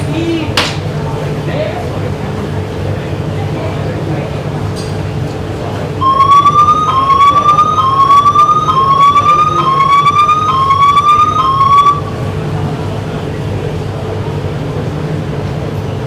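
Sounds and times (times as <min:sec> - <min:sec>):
low train hum: 0:00.0 - 0:16.0
short rising electronic tones: 0:06.0 - 0:12.2.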